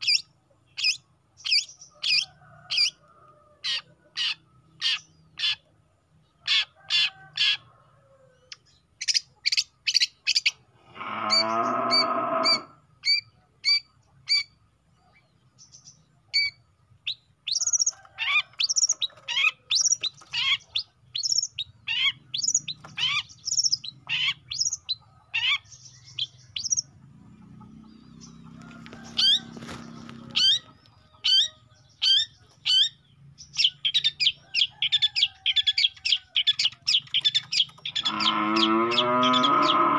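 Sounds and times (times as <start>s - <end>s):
bird chirping: 0.0s - 3.0s, 3.6s - 7.6s, 8.3s - 39.9s
harsh grating bird call: 9.0s - 14.5s, 17.5s - 25.7s, 33.6s - 39.9s.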